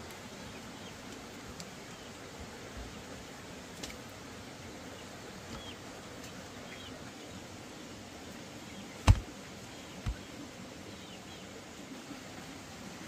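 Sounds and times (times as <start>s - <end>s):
sharp thump: 9.0s - 9.3s.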